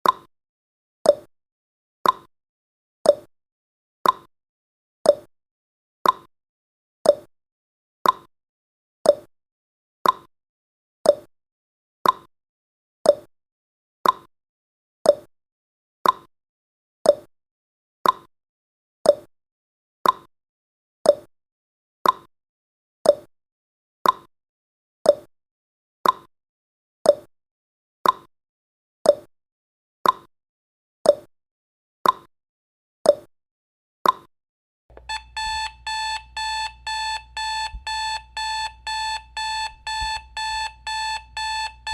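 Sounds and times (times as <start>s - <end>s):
clock ticking: 34.9s - 41.9s.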